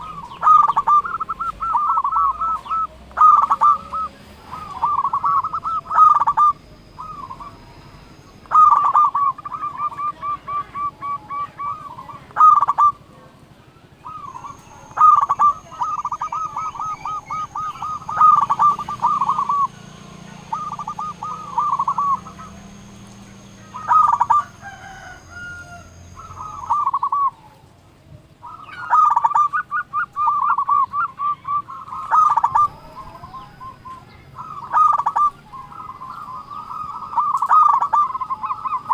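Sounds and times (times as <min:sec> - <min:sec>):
dove cooing: 0:00.0 - 0:38.9.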